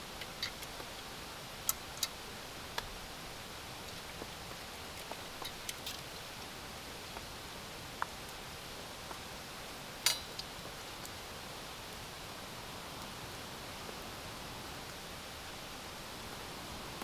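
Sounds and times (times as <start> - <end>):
steady background hiss: 0.0 - 17.0
sharp clink: 10.1 - 10.4.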